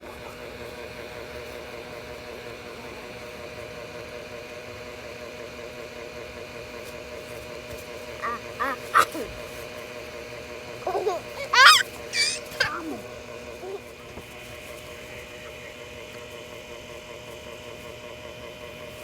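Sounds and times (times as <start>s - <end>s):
small motor humming: 7.2s - 18.0s
high-pitched vocal calls: 8.2s - 9.4s, 10.8s - 13.8s.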